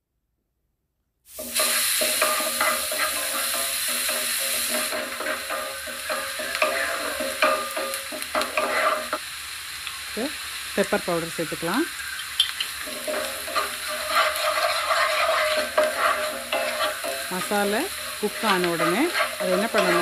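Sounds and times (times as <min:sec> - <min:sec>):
onion frying in butter sizzling: 0:01.3 - 0:20.0
wooden spatula scraping pan: 0:01.4 - 0:09.2, 0:12.6 - 0:20.0.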